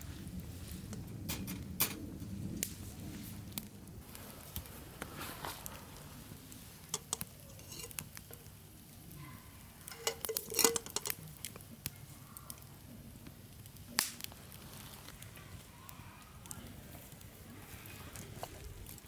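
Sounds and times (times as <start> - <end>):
metal cookware and utensils clinking: 6.9 - 8.5, 9.8 - 11.2.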